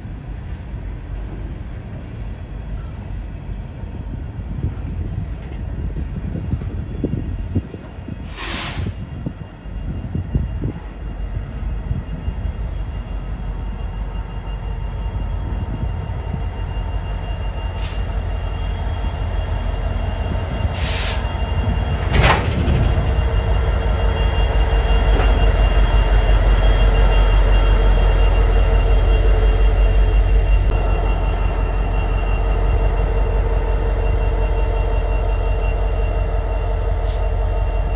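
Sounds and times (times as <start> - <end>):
train rumbling: 0.0 - 37.9
short bursts of hiss: 8.3 - 9.0
steady high-pitched tones: 9.4 - 37.9.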